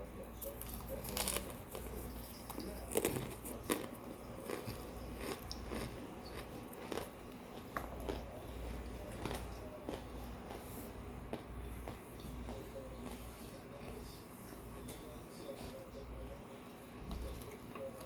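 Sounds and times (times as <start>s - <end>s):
person chewing crunchy food: 0.4s - 14.1s.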